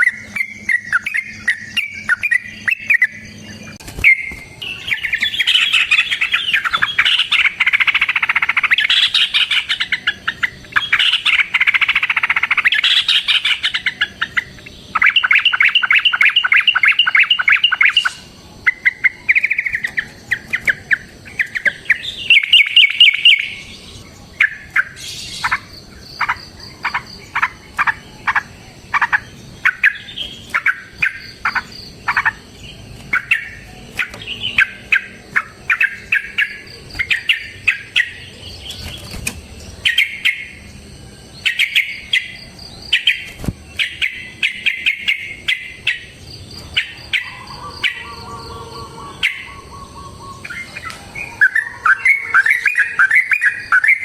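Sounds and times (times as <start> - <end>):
bird chirping: 0.0 - 54.0
faint high-pitched tones: 46.6 - 54.0.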